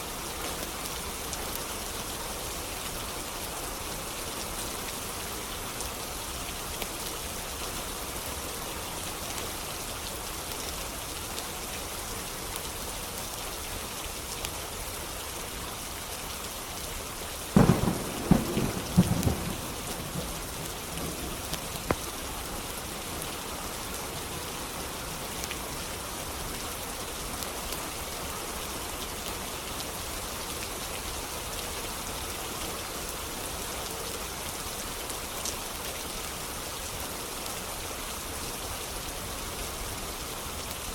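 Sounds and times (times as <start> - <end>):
steady rain hiss: 0.0 - 40.9
thunderclap with rumble: 17.6 - 22.1.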